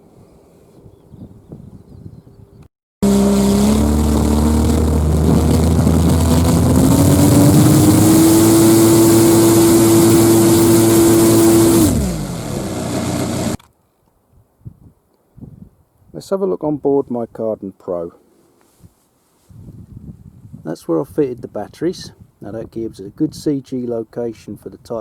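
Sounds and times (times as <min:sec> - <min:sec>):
model aircraft engine: 0:03.0 - 0:13.6.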